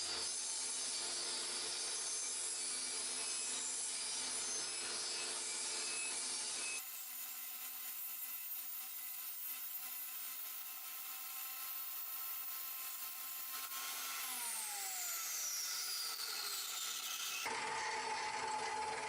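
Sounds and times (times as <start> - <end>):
table saw running: 0.0 - 19.0
saw blade spinning down: 10.3 - 19.0.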